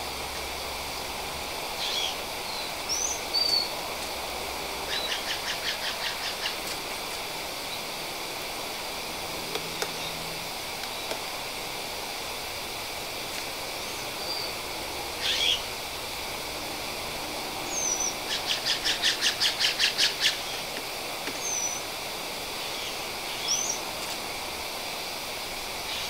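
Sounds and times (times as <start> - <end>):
wild birds chirping and whistling: 1.7 - 3.8, 4.8 - 6.7, 13.8 - 15.7, 17.6 - 20.7, 21.3 - 21.9, 22.5 - 23.9, 25.8 - 26.0.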